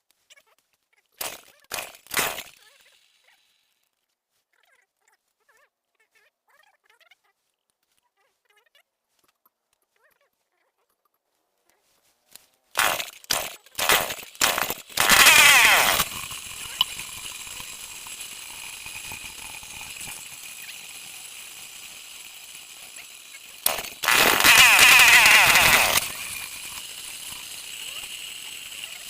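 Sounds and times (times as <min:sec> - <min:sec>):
chainsaw starting and revving: 0:01.2 - 0:02.8, 0:12.7 - 0:29.0.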